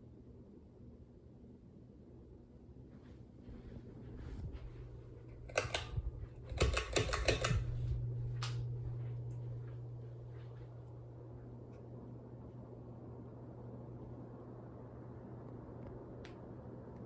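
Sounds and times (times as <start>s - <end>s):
ceiling fan motor humming: 1.7s - 17.0s
rapid rattling clicks: 5.4s - 7.7s.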